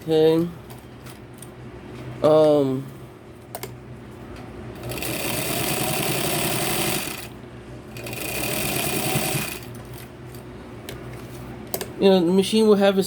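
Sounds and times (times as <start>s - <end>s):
sewing machine stitching: 4.8s - 7.3s, 8.0s - 9.7s.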